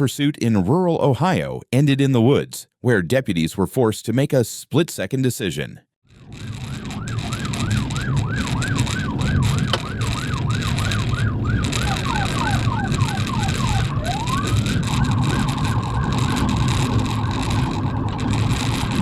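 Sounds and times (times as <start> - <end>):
engine and road rumble: 6.1 - 19.0
police siren: 6.1 - 19.0.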